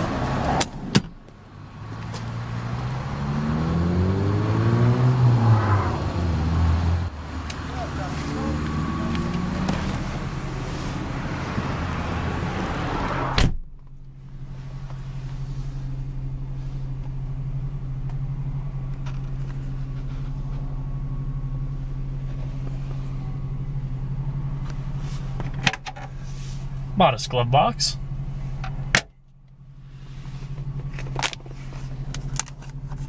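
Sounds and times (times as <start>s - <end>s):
car door shutting: 0.0s - 1.4s, 7.3s - 13.9s
car engine idling: 0.0s - 33.0s.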